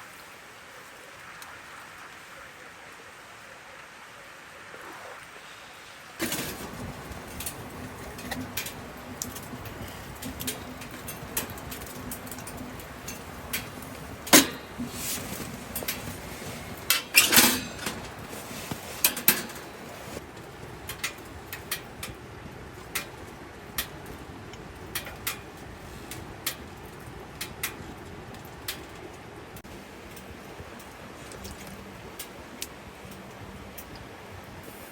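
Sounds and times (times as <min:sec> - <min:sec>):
hard objects knocking and clinking: 0:06.2 - 0:20.2.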